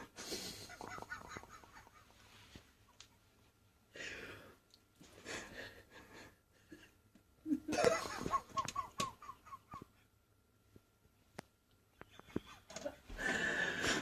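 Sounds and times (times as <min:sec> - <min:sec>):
person laughing: 0:00.4 - 0:02.1, 0:07.4 - 0:10.0.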